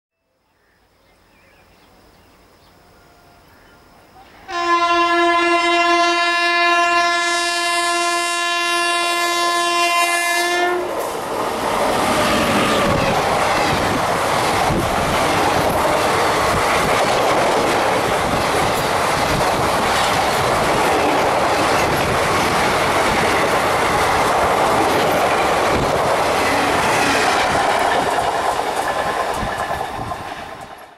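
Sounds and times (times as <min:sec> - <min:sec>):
train horn blast: 0:04.3 - 0:11.0
train wheels on rails: 0:10.4 - 0:30.9.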